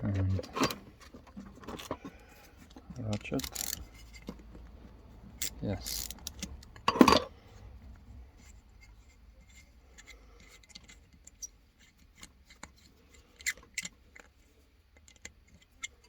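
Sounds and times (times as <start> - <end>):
hand tools clicking and scraping: 0.1 - 7.4.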